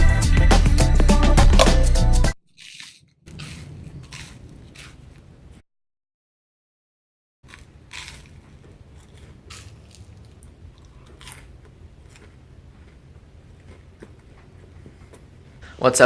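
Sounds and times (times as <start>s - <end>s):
person chewing crunchy food: 2.5s - 5.6s, 7.5s - 15.6s.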